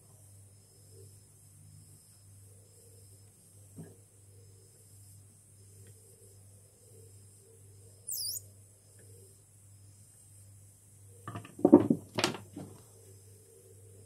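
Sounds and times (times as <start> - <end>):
high-pitched chirp: 8.1 - 8.4
clatter of knocks: 11.3 - 12.8.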